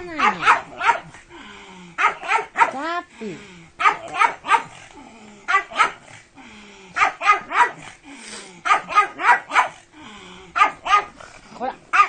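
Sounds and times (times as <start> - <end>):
dog barking: 0.1 - 1.2, 2.0 - 2.8, 3.8 - 4.8, 5.5 - 6.1, 7.0 - 7.9, 8.6 - 9.8, 10.6 - 11.2.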